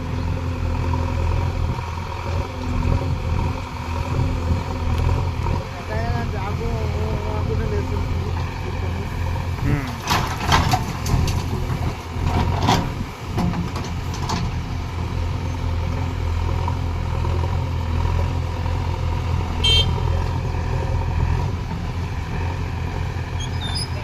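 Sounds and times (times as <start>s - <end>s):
heavy diesel engine running: 0.0s - 24.0s
high squeak: 23.4s - 24.0s.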